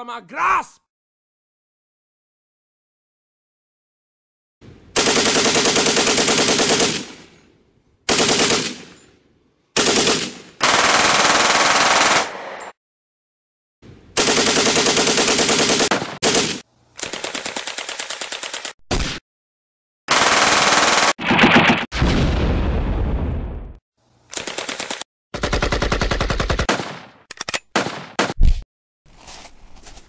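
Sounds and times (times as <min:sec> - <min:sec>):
machine gun automatic fire: 0:05.0 - 0:07.2, 0:08.1 - 0:08.9, 0:09.8 - 0:12.4, 0:14.2 - 0:18.8, 0:20.1 - 0:21.7, 0:24.4 - 0:27.1.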